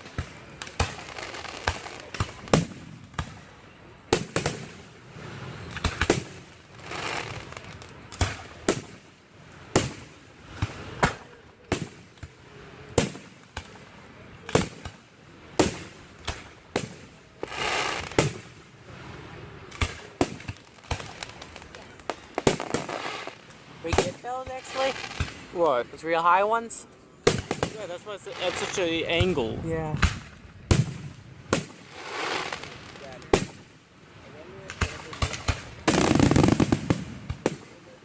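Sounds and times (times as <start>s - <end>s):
firework hissing burst: 19.2s - 25.6s, 27.2s - 29.1s, 30.0s - 33.6s, 34.7s - 37.9s
firework shells bursting: 34.6s - 38.0s.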